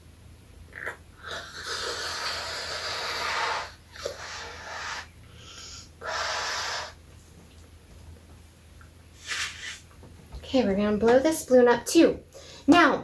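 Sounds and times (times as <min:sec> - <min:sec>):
person blowing up a balloon: 0:00.8 - 0:07.0, 0:09.2 - 0:09.9.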